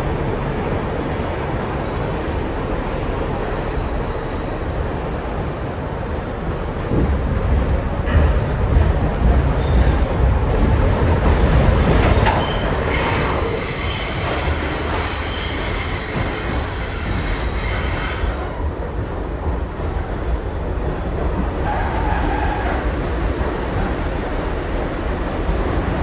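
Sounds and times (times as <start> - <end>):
subway train rumbling on rails: 0.0 - 26.0
steel wheels squealing on rail: 9.4 - 10.4, 11.5 - 18.6, 21.5 - 23.2.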